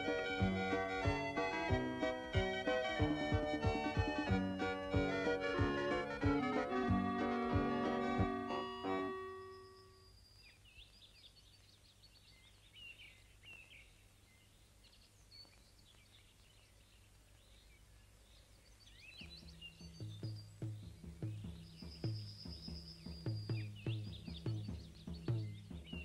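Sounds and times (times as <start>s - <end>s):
low thuds and notes: 0.0s - 9.5s, 19.2s - 26.0s
keyboard tune: 0.0s - 10.0s
background hiss: 0.0s - 26.0s
birds chirping: 0.0s - 26.0s.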